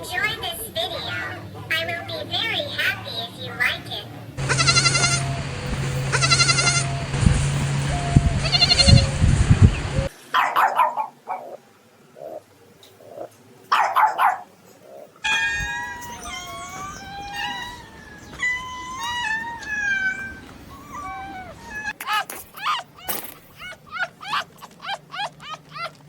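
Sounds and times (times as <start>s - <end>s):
cat meowing: 4.4s - 7.2s, 15.3s - 22.0s
animal bleating: 4.4s - 10.0s.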